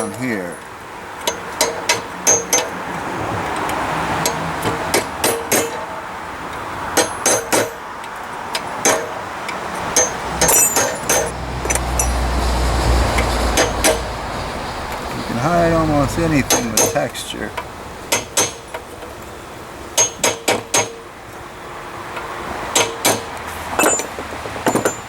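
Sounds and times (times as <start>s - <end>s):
hammer striking hot steel: 1.2s - 2.8s, 4.2s - 5.9s, 7.0s - 7.9s, 8.5s - 9.2s, 9.9s - 12.1s, 13.6s - 14.1s, 15.9s - 17.4s, 18.1s - 18.8s, 20.0s - 21.0s, 22.7s - 25.0s
steady hiss: 12.3s - 18.3s.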